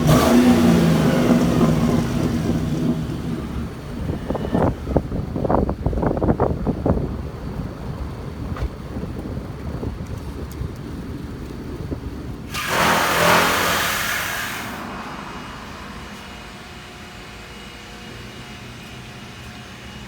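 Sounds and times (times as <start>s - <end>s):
engine exhaust rumbling: 0.0s - 20.0s
loud rushing surge: 12.5s - 18.0s.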